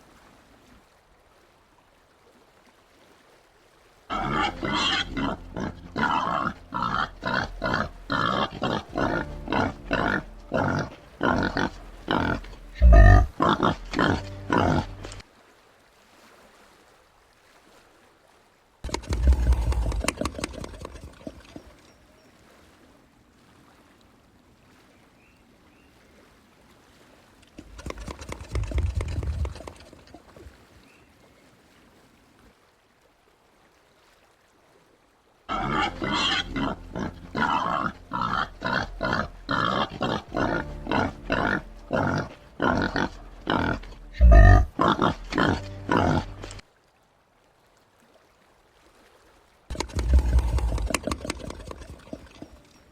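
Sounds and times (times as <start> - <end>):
peccary calling outburst: 4.1 - 15.2, 18.8 - 21.8, 35.5 - 46.6, 49.7 - 52.6
peccary rapid grunts: 49.7 - 52.4.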